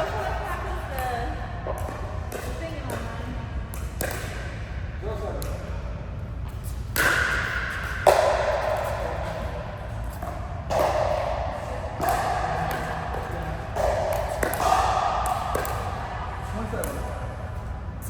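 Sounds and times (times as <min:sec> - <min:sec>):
racket strikes with ringing: 0:06.9 - 0:17.2.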